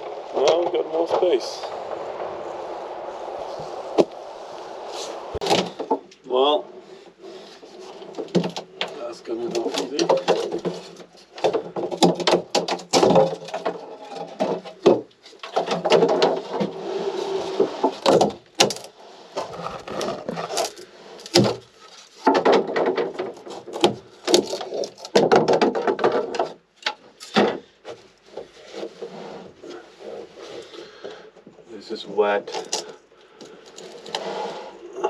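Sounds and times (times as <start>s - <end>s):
wood creaking and scraping: 0.0s - 35.0s
wood knocks and cracks: 5.4s - 6.2s, 7.8s - 16.8s, 17.6s - 29.0s.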